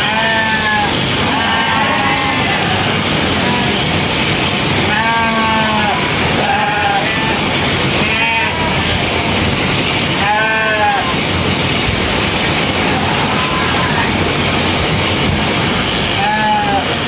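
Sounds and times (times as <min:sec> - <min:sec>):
sheep bleating: 0:00.0 - 0:04.1, 0:04.7 - 0:09.2, 0:10.1 - 0:11.2, 0:12.8 - 0:14.2, 0:16.0 - 0:17.0
steady loud noise: 0:00.0 - 0:17.0.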